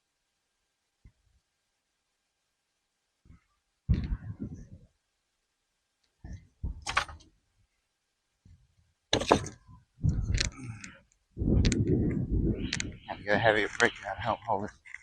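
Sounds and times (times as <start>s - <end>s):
bricks clunking and scraping: 9.2s - 9.6s.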